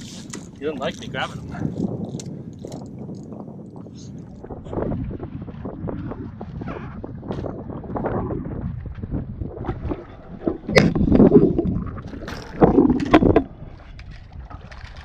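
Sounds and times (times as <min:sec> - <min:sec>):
wind and water rushing: 0:00.0 - 0:14.9
fish thrashing and splashing: 0:09.7 - 0:13.6.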